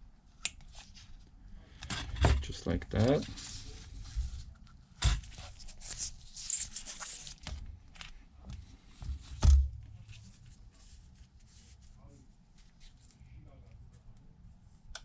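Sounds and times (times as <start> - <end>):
adhesive tape rustling: 5.2 - 7.5.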